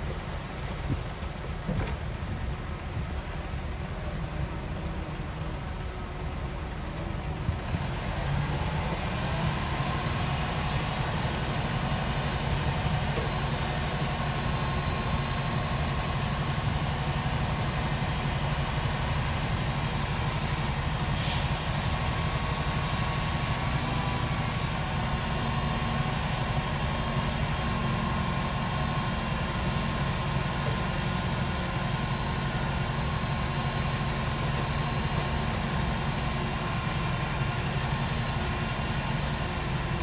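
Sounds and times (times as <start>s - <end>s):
heavy diesel engine rumbling: 0.0s - 40.0s
short hiss: 21.2s - 21.6s.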